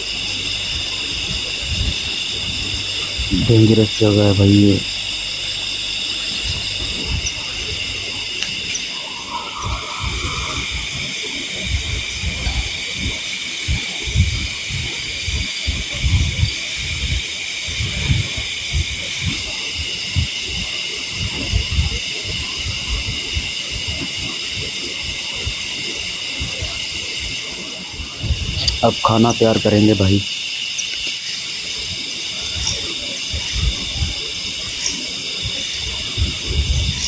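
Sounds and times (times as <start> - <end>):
low rumbling: 0.0 - 13.1
night insects chorus: 0.0 - 37.0.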